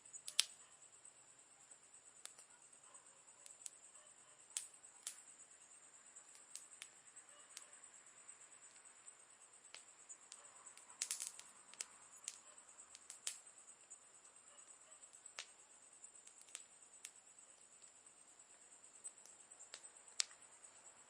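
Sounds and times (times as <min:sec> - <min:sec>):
campfire crackling: 0:00.0 - 0:21.0
wood popping: 0:09.7 - 0:13.4, 0:16.2 - 0:18.0.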